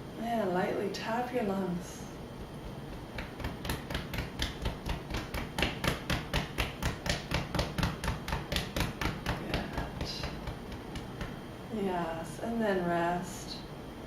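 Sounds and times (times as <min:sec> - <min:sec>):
hands tapping on chest: 0:02.4 - 0:11.5.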